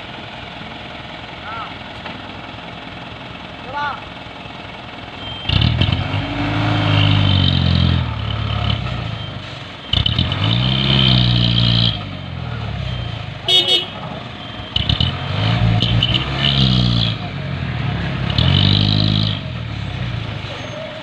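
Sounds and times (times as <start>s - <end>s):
diesel truck engine revving: 4.2s - 21.0s.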